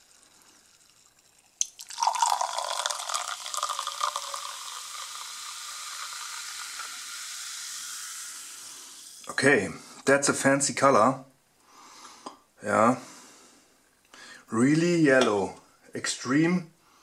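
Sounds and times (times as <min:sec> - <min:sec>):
drink pouring into a glass: 0:00.0 - 0:09.3
fizzing hiss of bubbles: 0:00.0 - 0:09.4.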